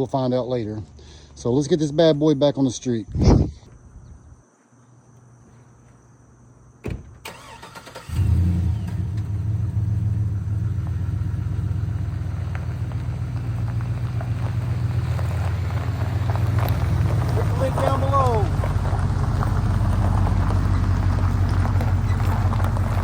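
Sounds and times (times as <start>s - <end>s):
truck engine cranking and running: 7.2s - 23.0s.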